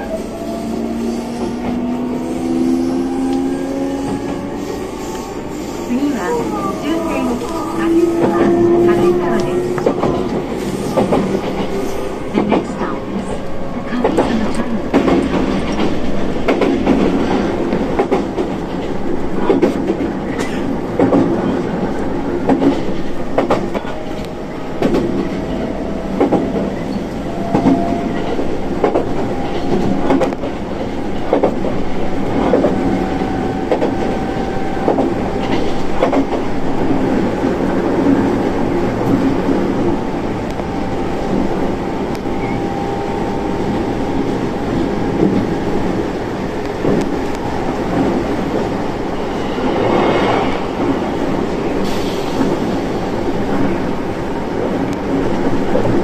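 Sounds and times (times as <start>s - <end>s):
train rumble: 0.0s - 56.0s
train wheels clacking on rail joints: 7.9s - 21.5s, 22.4s - 37.2s.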